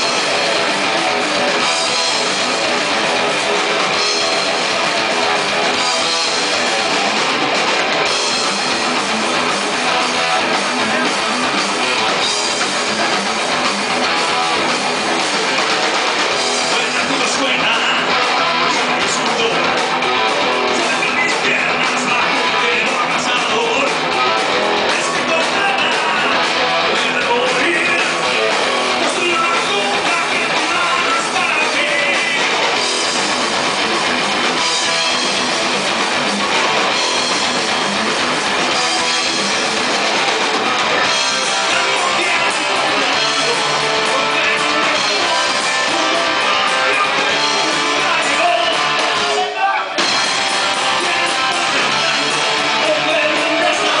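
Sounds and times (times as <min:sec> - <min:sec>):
drum kit: 0:00.0 - 0:54.0
electric guitars: 0:00.0 - 0:54.0
person singing: 0:16.4 - 0:32.8, 0:41.0 - 0:54.0.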